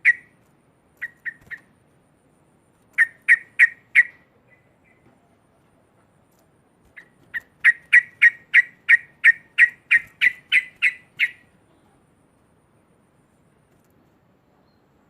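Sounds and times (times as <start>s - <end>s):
bird chattering: 0.0s - 0.3s, 1.0s - 1.7s, 3.0s - 5.0s, 6.9s - 11.5s.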